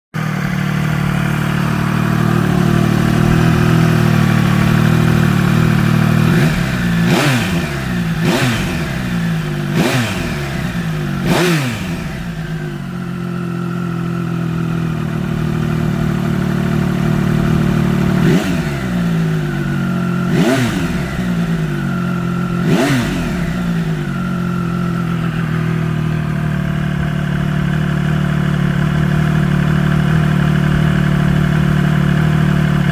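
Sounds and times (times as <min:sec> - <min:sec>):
motorcycle engine idling and revving: 0:00.1 - 0:32.9.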